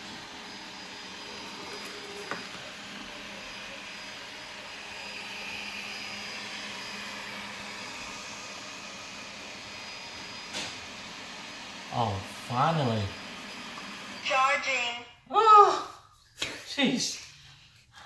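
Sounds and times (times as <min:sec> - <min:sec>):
robot vacuum cleaner whirring: 0:00.0 - 0:14.9.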